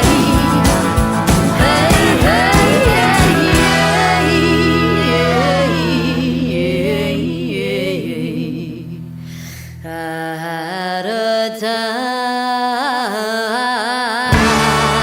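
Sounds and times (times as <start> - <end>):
band with bass: 0.0 - 9.5, 14.3 - 15.0.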